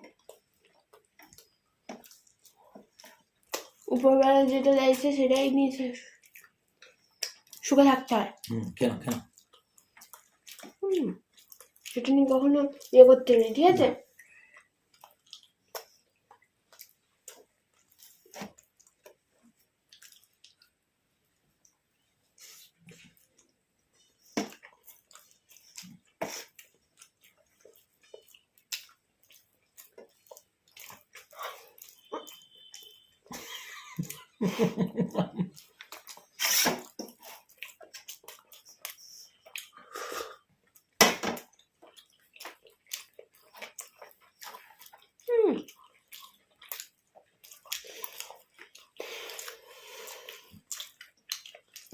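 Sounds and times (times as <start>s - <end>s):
person chewing food: 0.0s - 7.7s, 8.3s - 51.9s.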